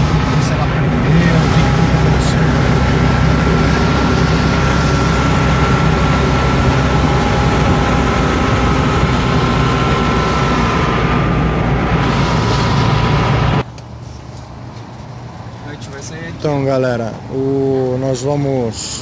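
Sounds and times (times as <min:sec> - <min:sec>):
car engine running: 0:00.0 - 0:13.7
steady high whine: 0:00.0 - 0:13.7.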